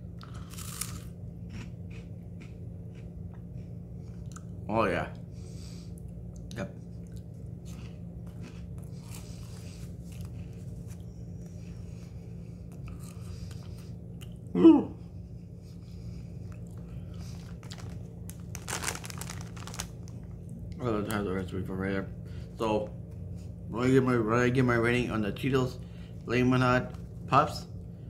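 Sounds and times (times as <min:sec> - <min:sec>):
low hum: 0:00.0 - 0:28.0
crunchy snack chewing: 0:00.2 - 0:03.1, 0:07.0 - 0:11.1, 0:16.5 - 0:20.2
vocal exclamation: 0:14.5 - 0:15.0.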